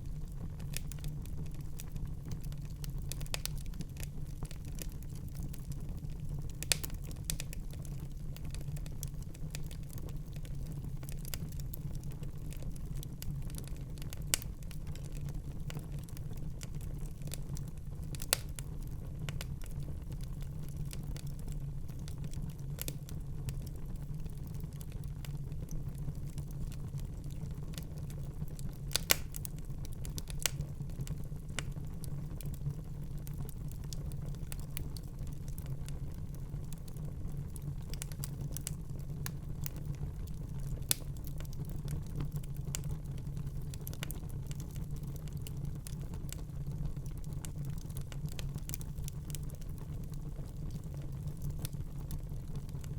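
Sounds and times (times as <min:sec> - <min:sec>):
fire crackling: 0:00.0 - 0:52.9
low rumble of flame: 0:00.0 - 0:52.9
sharp pops and snaps: 0:28.9 - 0:29.5.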